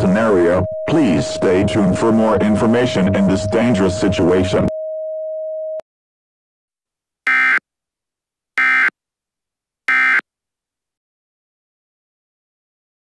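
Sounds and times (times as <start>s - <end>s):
short buzzy beeps: 7.3s - 7.6s, 8.6s - 8.9s, 9.9s - 10.2s.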